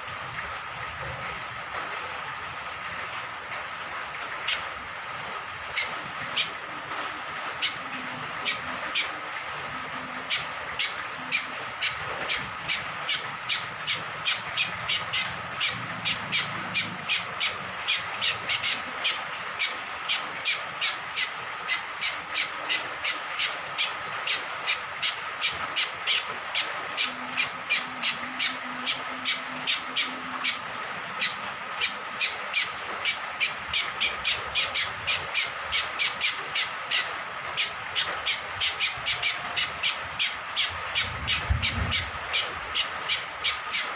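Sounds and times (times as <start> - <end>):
honeyeater chirping rapidly: 10.2 - 30.6, 31.2 - 43.9.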